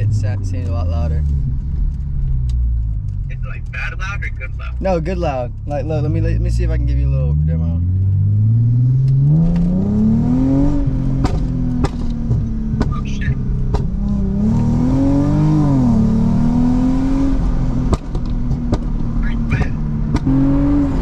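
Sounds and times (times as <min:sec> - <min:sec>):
car engine revving: 0:00.0 - 0:21.0
sharp exhaust pops: 0:11.1 - 0:14.2, 0:17.7 - 0:20.4.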